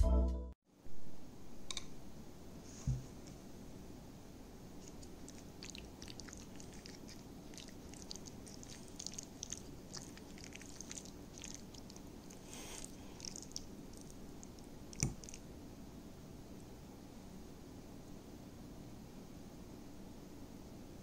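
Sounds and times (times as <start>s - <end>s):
person chewing: 4.8s - 15.4s.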